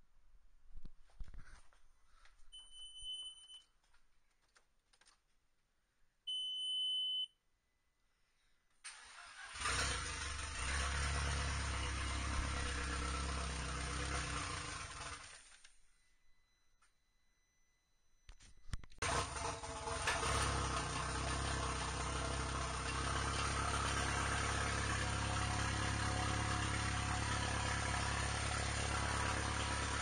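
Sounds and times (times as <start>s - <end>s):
electronic warning beeps: 6.3s - 7.3s
car engine starting and running: 8.9s - 15.7s, 19.0s - 30.0s.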